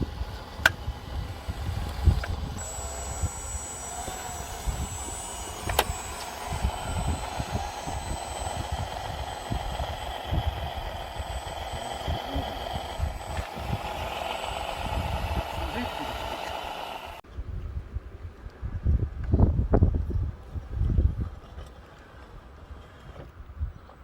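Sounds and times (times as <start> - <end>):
electric motor whining: 0.0 - 17.2
sharp click: 1.9 - 15.6
wind rumble on microphone: 17.3 - 21.7.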